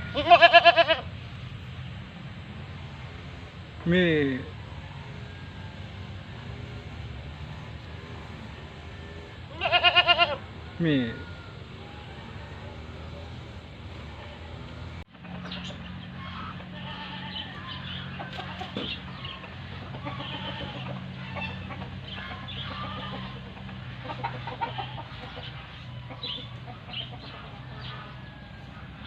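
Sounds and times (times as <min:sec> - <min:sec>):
chickens clucking: 0:10.8 - 0:29.0.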